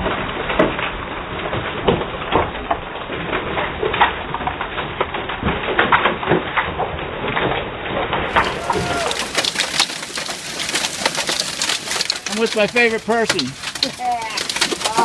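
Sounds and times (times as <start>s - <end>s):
hail striking: 0.0s - 15.0s.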